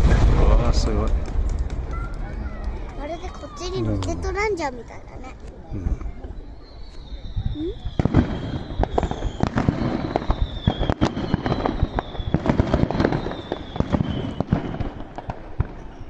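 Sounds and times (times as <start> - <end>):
fireworks popping and crackling: 0.0 - 16.0
fireworks whistles falling in pitch: 1.9 - 3.7, 6.1 - 16.0.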